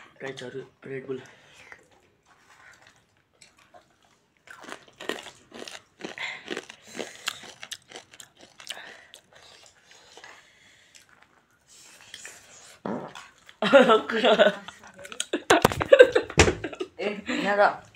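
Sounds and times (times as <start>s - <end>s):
crunchy food being chewed: 1.7s - 13.6s.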